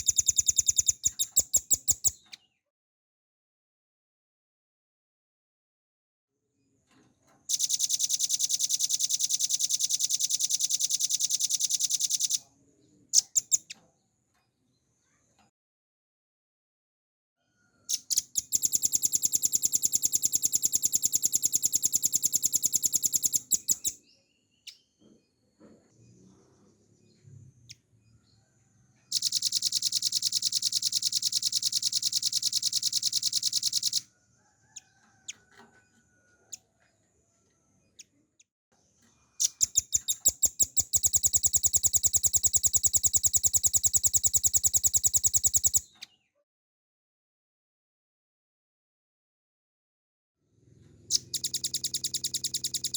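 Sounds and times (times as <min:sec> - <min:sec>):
bird singing fast trills: 0:00.0 - 0:02.3, 0:07.5 - 0:12.5, 0:13.2 - 0:13.8, 0:17.9 - 0:24.0, 0:29.1 - 0:34.0, 0:39.4 - 0:46.0, 0:51.1 - 0:52.9.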